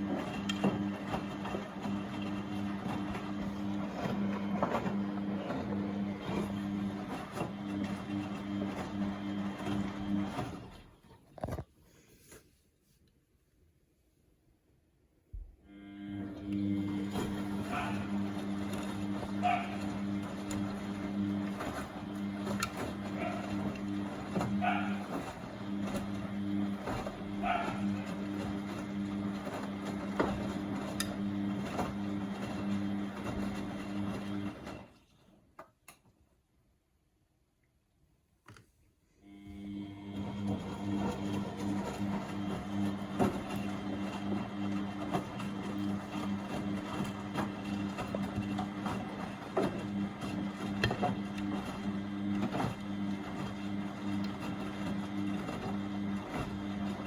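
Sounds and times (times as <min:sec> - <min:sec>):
washing machine motor hum: 0:00.0 - 0:11.6, 0:15.3 - 0:35.4, 0:39.2 - 0:57.0.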